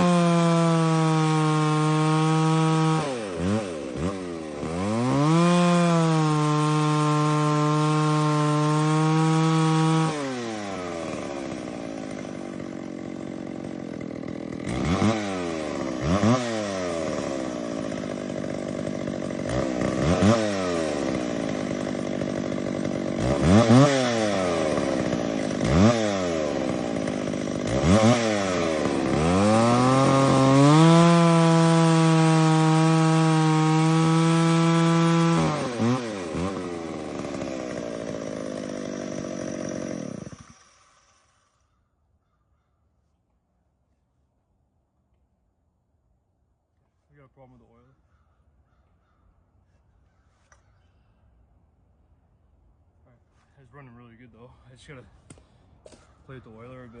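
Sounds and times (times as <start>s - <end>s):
chainsaw revving and idling: 0.0s - 41.6s.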